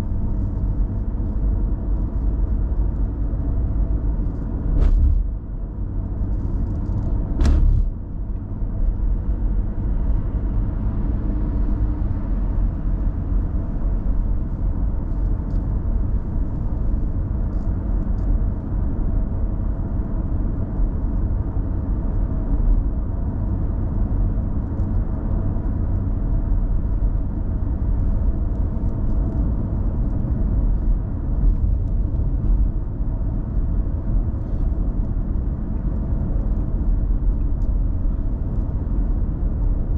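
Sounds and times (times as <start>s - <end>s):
car engine and road rumble: 0.0s - 39.9s
sharp knock: 4.8s - 5.2s, 7.4s - 7.9s.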